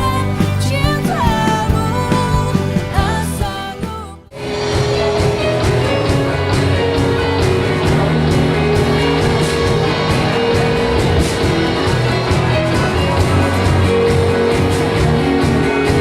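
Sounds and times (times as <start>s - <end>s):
rock band playing live: 0.0s - 16.0s
drum beat: 4.4s - 16.0s.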